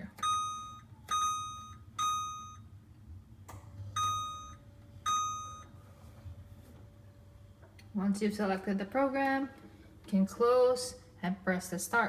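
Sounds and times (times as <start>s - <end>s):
microwave beeps: 0.0s - 2.9s, 3.8s - 5.9s.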